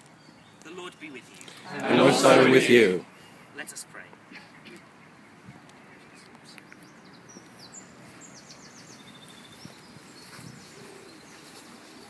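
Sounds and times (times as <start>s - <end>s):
outdoor background noise: 0.0s - 12.0s
birds chirping and trilling: 4.4s - 12.0s.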